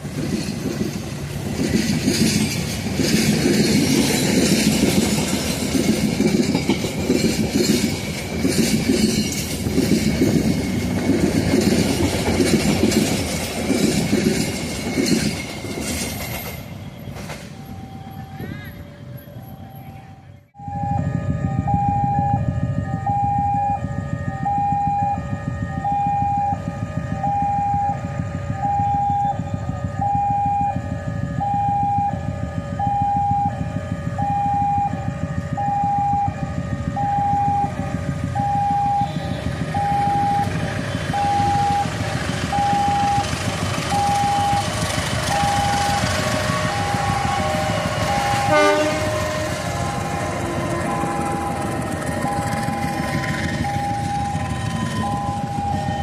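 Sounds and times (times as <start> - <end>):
two-tone level crossing alarm: 17.6 - 56.0
rushing noise: 34.8 - 56.0.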